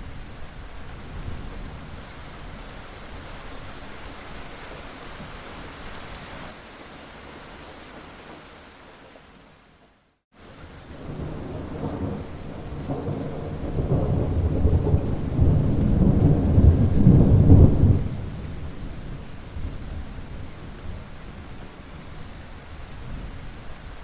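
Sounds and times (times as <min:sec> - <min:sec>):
steady rain hiss: 0:00.0 - 0:24.0
rolling thunder: 0:10.9 - 0:21.1.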